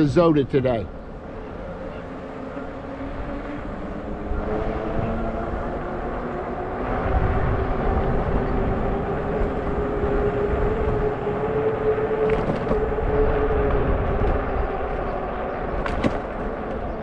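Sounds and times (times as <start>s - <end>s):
wind on microphone: 2.6s - 17.0s.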